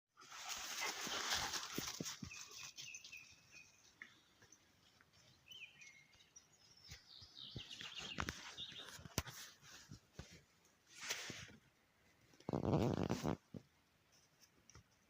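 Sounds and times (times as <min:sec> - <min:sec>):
songbirds singing: 0:02.2 - 0:09.4.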